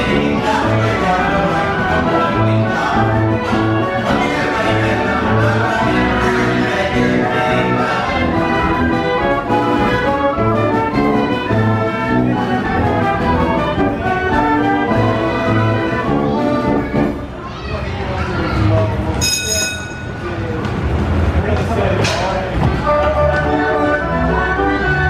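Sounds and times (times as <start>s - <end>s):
band organ playing a tune: 0.0s - 17.3s, 22.8s - 25.0s.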